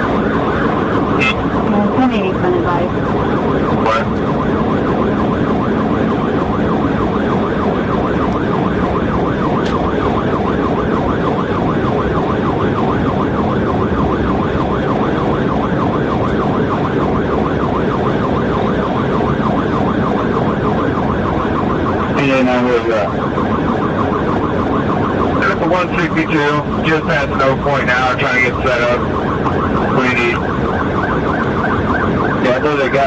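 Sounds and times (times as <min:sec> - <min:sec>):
police siren yelping: 0:00.0 - 0:33.0
road and engine noise: 0:00.0 - 0:33.0.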